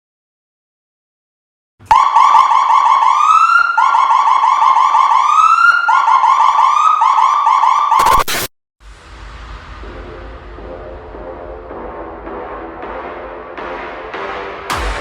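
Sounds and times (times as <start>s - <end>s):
electronic police siren: 1.8s - 8.5s.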